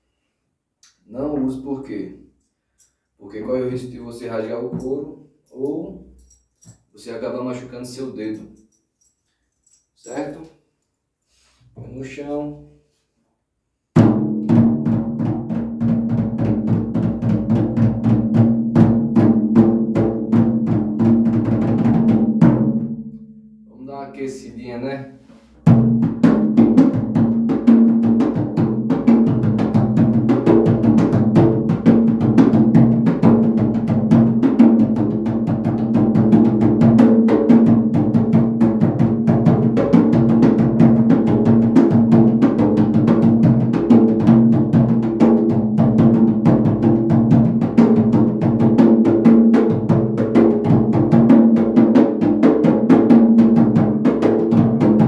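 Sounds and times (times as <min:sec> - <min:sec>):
hand drum rhythm: 0:14.0 - 0:22.9, 0:25.6 - 0:55.0.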